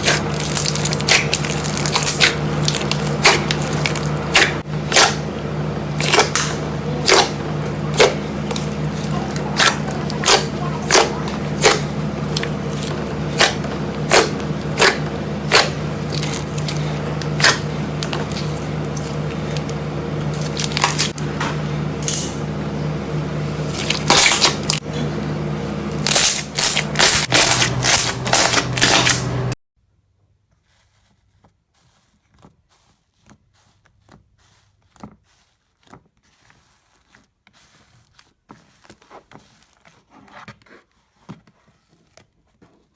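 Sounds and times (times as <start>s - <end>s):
steady low hum: 0.0s - 29.6s.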